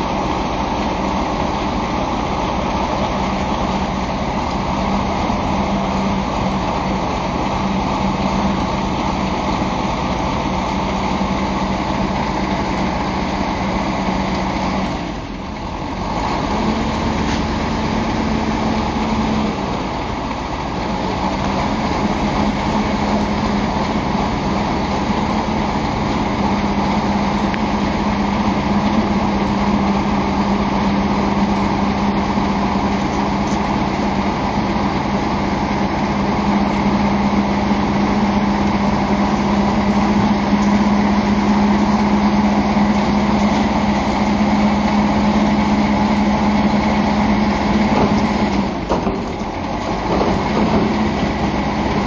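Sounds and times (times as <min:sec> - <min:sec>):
truck diesel engine running: 0:00.0 - 0:52.0.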